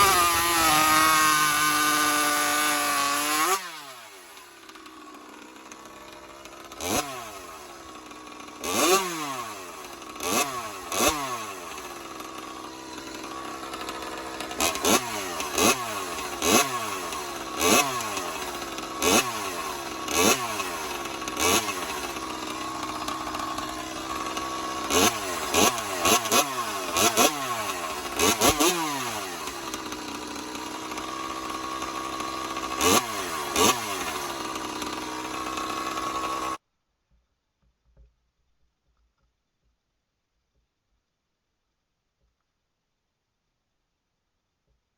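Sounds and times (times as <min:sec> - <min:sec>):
scooter engine revving: 0:00.0 - 0:36.6.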